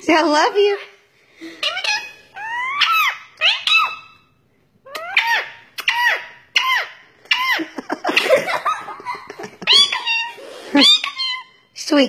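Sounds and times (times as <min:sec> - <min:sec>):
parrot squawking: 0:00.3 - 0:04.3, 0:04.9 - 0:08.4, 0:09.6 - 0:11.7
parrot chattering calls: 0:00.5 - 0:04.3, 0:04.9 - 0:08.4, 0:09.6 - 0:11.7.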